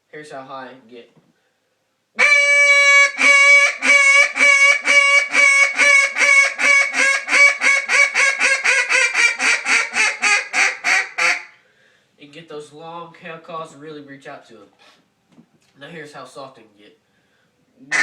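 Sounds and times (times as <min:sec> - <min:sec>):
duck call quacking: 0:02.2 - 0:11.6.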